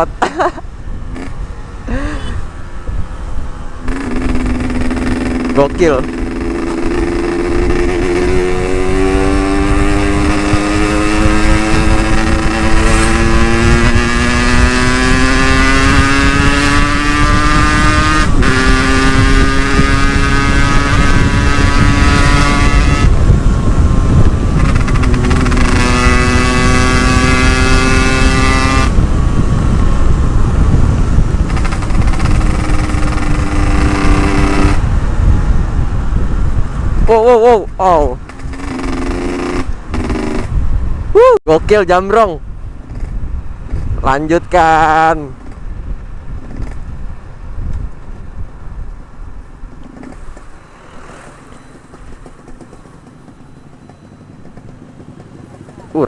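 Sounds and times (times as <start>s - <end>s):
wind noise on microphone: 0.0s - 56.0s
two-stroke engine accelerating: 3.9s - 35.0s, 37.2s - 40.6s, 51.0s - 56.0s.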